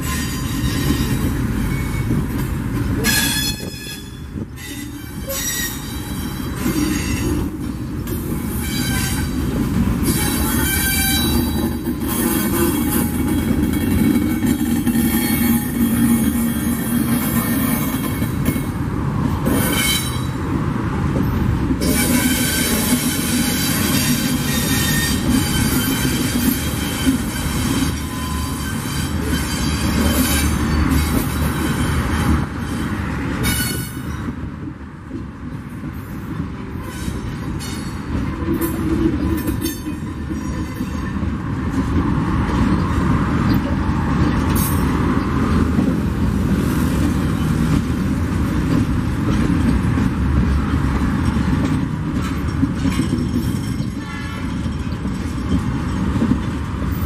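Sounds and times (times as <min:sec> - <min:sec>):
metallic wheel squeal: 0:00.0 - 0:02.2, 0:03.0 - 0:07.4, 0:21.8 - 0:34.3
freight train wheels rumbling: 0:00.0 - 0:57.0.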